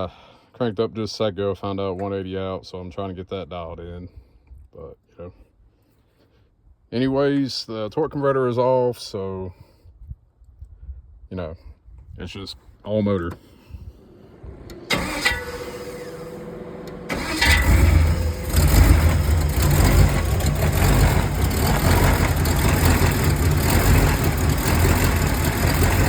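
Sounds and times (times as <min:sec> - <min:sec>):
engine cranking on starter: 0:13.3 - 0:26.0
engine running: 0:13.3 - 0:26.0.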